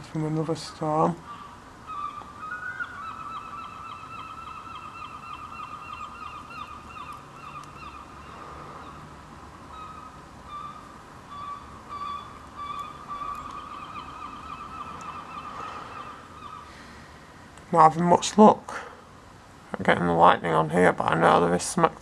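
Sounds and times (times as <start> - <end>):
seagulls calling: 0.0 - 17.3.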